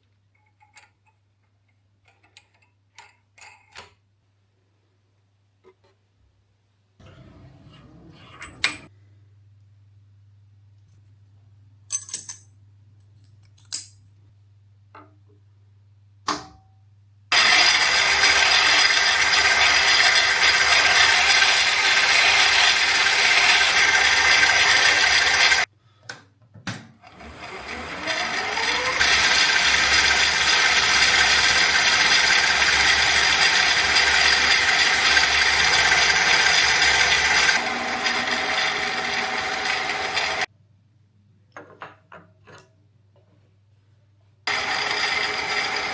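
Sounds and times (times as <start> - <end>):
metal lathe running: 17.3 - 25.7, 27.1 - 40.5, 44.5 - 45.9.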